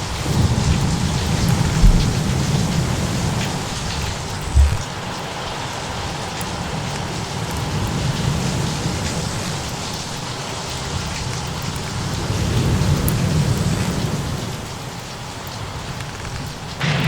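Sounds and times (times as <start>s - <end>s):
low roll of thunder: 0.0s - 5.1s, 16.8s - 17.0s
faint fire crackles: 0.0s - 17.0s
steady rain: 0.0s - 17.0s.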